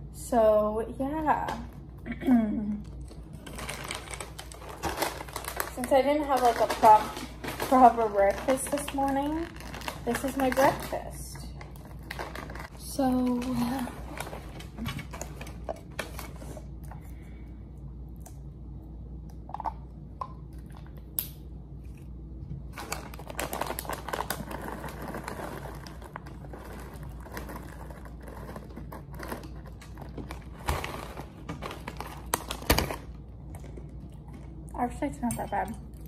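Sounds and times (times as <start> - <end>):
steady low hum: 0.0 - 36.0
packaging crinkling: 3.0 - 16.7, 22.7 - 34.6.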